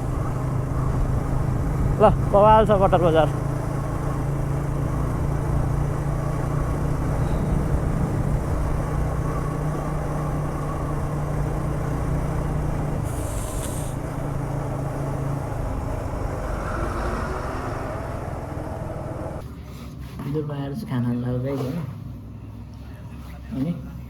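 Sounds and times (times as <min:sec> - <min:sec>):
vehicle engine running: 0:00.0 - 0:19.6
road noise: 0:00.0 - 0:24.0
short hiss: 0:13.1 - 0:14.0.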